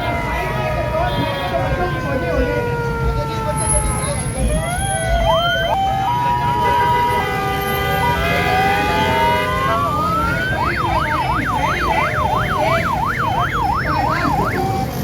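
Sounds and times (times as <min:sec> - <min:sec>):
electronic vehicle siren: 0:00.0 - 0:15.0
vehicle rumble: 0:00.0 - 0:15.0
steady horn tones: 0:06.6 - 0:10.0.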